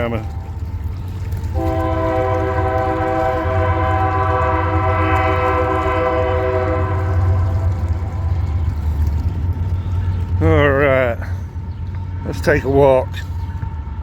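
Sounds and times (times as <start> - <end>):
low rumble of train: 0.0 - 14.0
train horn blast: 1.5 - 9.4.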